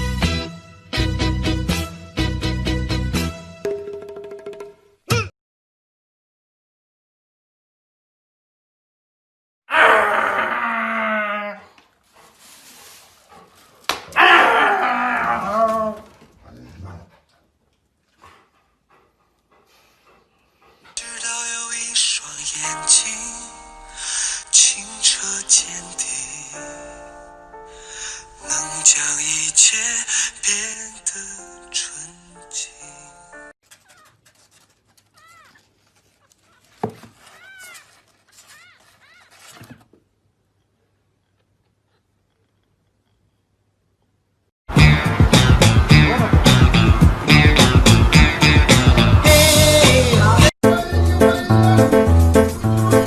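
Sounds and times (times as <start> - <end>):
dog howling bark: 14.1 - 16.2.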